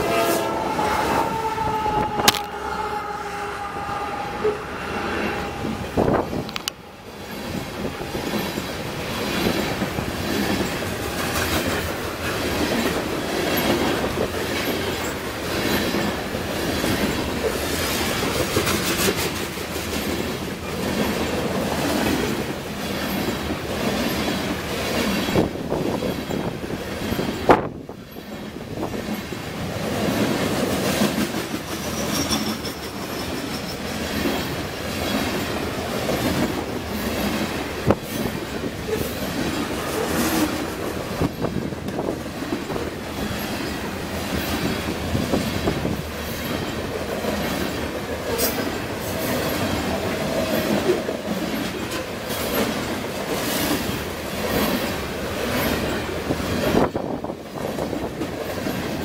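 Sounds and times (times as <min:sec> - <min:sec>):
train rumble: 0:00.0 - 0:59.0
train wheels clicking over rail joints: 0:01.7 - 0:02.6, 0:06.0 - 0:59.0
faint high wheel squeal: 0:31.8 - 0:34.3.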